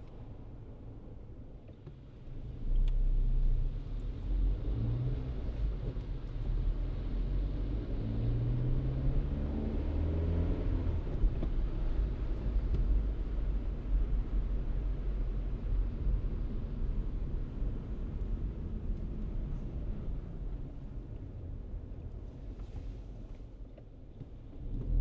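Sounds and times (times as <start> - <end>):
road rumble: 2.8 - 25.0
car engine accelerating: 4.1 - 19.0.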